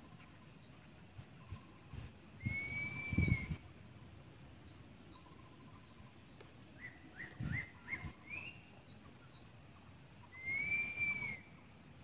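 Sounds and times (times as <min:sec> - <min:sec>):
faint outdoor hiss: 0:00.0 - 0:12.0
bird chirps and whistle: 0:02.4 - 0:03.7, 0:06.7 - 0:09.2, 0:10.3 - 0:11.6.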